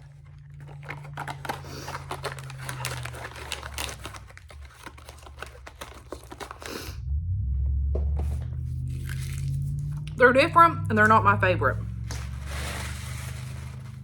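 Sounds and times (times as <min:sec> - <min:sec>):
plastic packaging crinkling: 0:00.0 - 0:07.0, 0:08.9 - 0:10.0, 0:12.0 - 0:14.0.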